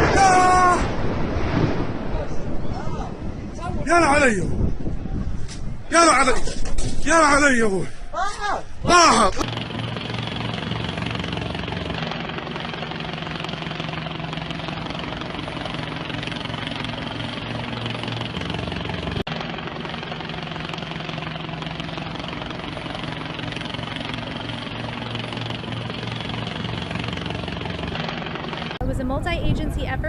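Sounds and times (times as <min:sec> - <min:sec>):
engine drone: 0:00.0 - 0:08.0, 0:08.7 - 0:30.0.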